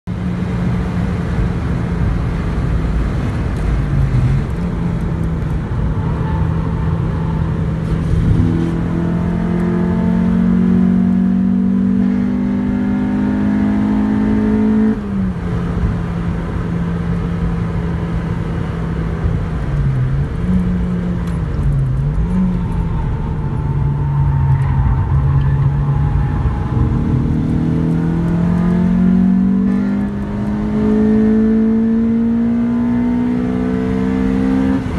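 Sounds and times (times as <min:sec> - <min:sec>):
car engine pulling hard: 0:00.2 - 0:34.9.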